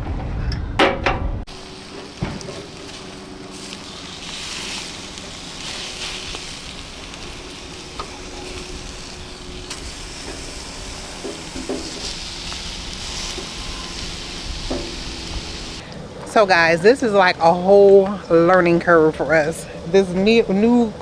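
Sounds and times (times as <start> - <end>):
meat sizzling on a grill: 1.5 - 15.8.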